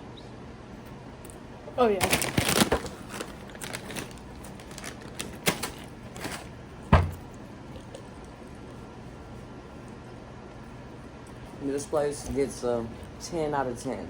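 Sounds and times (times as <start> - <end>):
heavy thump: 6.9 - 7.2.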